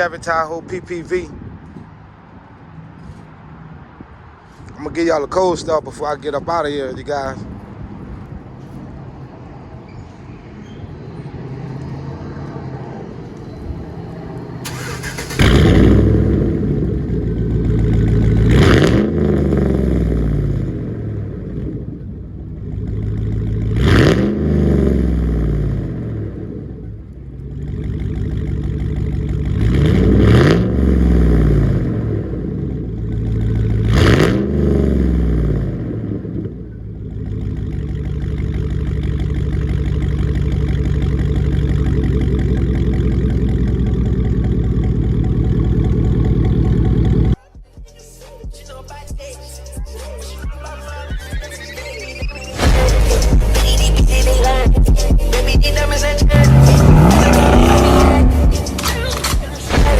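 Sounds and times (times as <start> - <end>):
car engine starting and revving: 11.1 - 47.4, 50.2 - 59.9.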